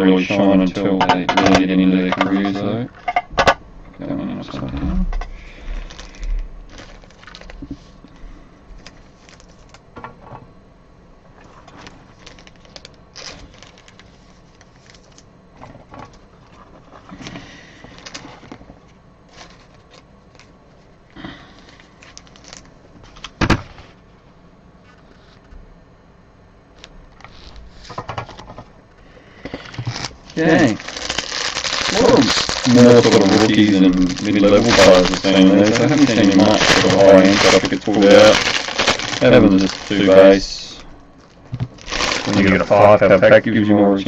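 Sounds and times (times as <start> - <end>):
cards and plastic rustling: 4.4 - 9.8, 11.4 - 24.0, 26.8 - 28.7, 29.4 - 43.7.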